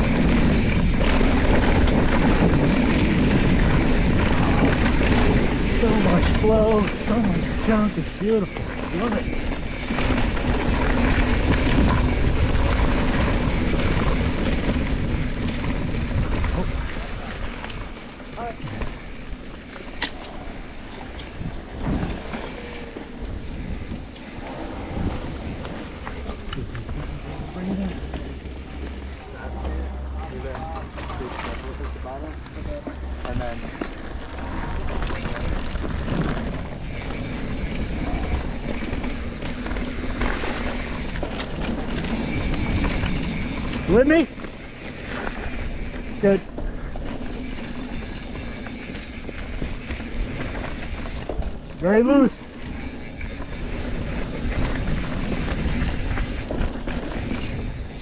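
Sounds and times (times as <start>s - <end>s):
wind buffeting microphone: 0.0s - 29.7s, 30.3s - 51.8s
bike tyres rumbling on dirt: 0.0s - 58.0s.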